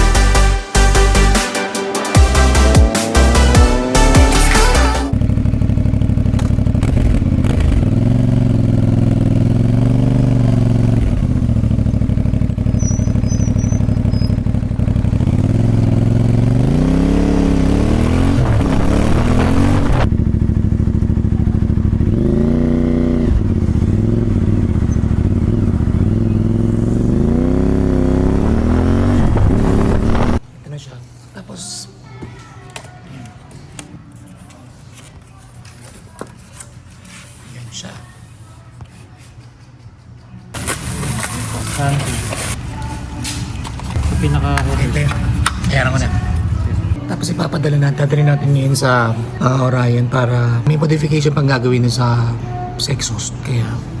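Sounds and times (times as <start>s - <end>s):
motorcycle engine idling and revving: 2.2s - 30.5s, 40.4s - 54.0s.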